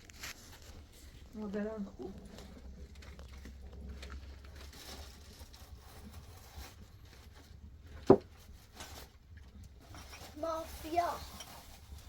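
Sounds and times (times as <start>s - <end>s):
faint rustling: 0.0s - 12.0s.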